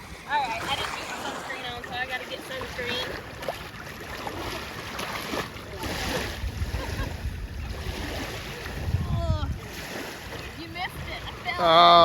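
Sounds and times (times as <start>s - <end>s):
wind rumbling on microphone: 0.0s - 3.5s, 5.7s - 11.6s
water at the shore: 0.0s - 12.0s.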